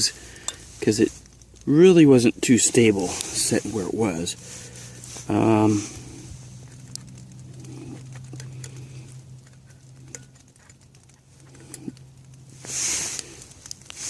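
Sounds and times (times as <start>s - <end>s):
handling rustle: 0.0s - 14.0s
light rain pattering: 0.0s - 14.0s
gear clicking and tapping: 6.6s - 12.3s.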